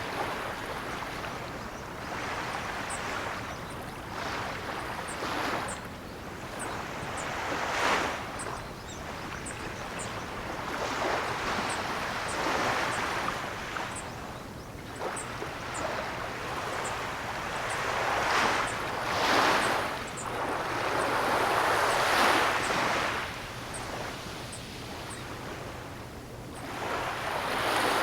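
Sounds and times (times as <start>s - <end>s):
ocean waves breaking: 6.4s - 26.0s.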